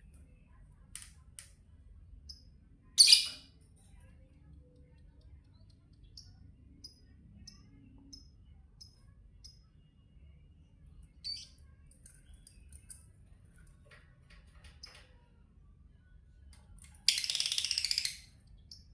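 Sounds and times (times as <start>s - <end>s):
bird chirping: 3.0s - 3.5s, 11.2s - 11.6s, 17.1s - 18.9s.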